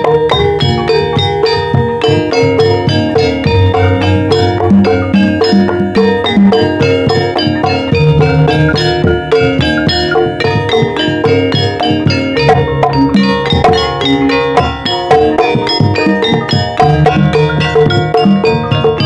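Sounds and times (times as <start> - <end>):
bronze metallophone notes: 0.0 - 19.0.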